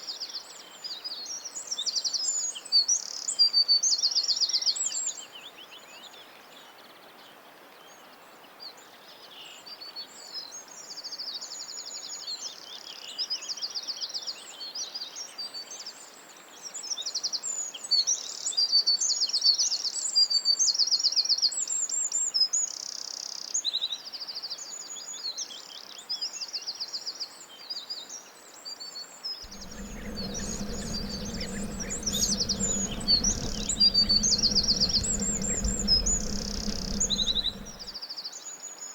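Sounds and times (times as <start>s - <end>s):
songbirds chirping and trilling: 29.5s - 37.9s
steady low hum: 29.5s - 38.0s.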